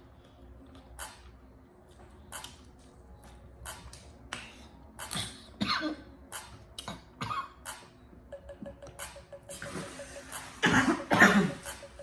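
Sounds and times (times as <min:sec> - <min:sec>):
woman coughing: 0:05.2 - 0:06.1, 0:10.6 - 0:11.7.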